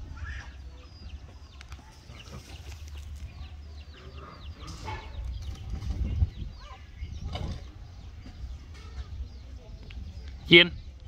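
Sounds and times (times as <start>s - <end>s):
birds chirping falling calls: 0.0s - 11.0s.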